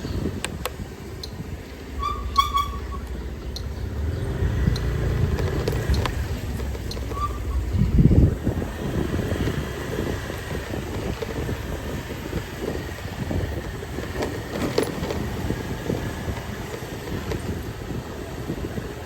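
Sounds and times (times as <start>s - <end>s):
motor vehicles passing: 0.0s - 19.0s
small knocks and clatter: 5.3s - 7.2s.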